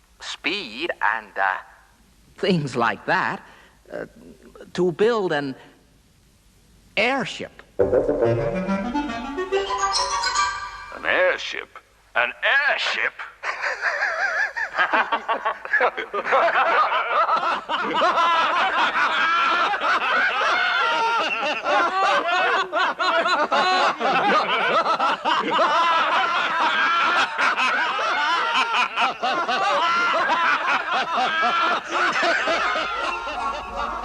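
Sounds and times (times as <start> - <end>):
men laughing: 13.5 - 34.0.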